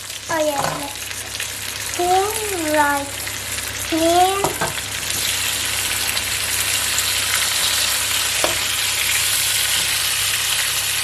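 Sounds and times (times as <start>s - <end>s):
onions sizzling in oil: 0.0s - 11.0s
utensil knocking against pan: 0.6s - 0.9s, 4.4s - 4.8s.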